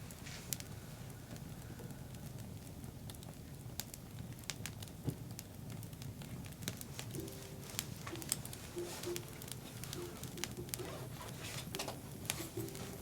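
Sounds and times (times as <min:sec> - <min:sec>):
campfire crackling and popping: 0:02.5 - 0:12.8.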